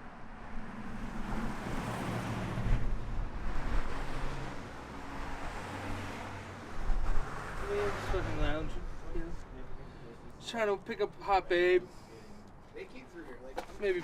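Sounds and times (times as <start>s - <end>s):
vehicle passing: 0.2s - 10.3s.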